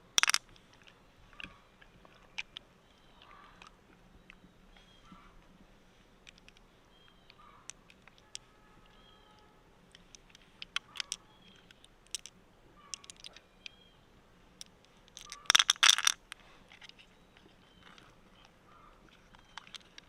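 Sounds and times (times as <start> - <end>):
hard objects clicking and scraping: 0.0 - 2.6, 9.9 - 13.8, 14.6 - 20.0.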